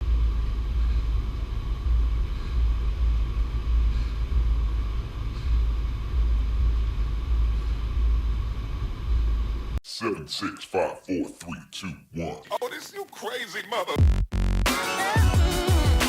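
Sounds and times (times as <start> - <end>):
uneven low rumble: 0.0 - 9.8
faint steady hum: 0.0 - 12.6.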